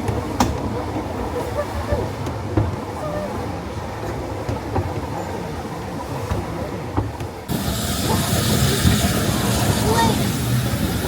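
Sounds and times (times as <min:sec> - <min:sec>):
train rumbling along track: 0:00.0 - 0:11.0
train wheels clicking: 0:06.3 - 0:11.0.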